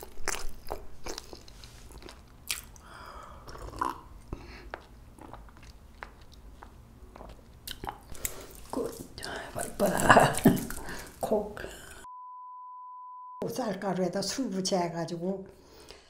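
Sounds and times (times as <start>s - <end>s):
chewing soft rice cake: 0.0s - 11.2s.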